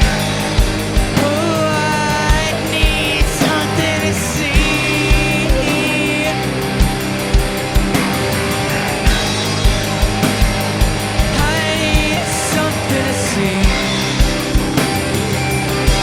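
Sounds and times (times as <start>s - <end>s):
person singing: 0.0s - 7.2s, 11.2s - 14.8s
bass guitar: 0.0s - 16.0s
distorted electric guitars: 0.0s - 16.0s
steady drum beat: 0.0s - 16.0s.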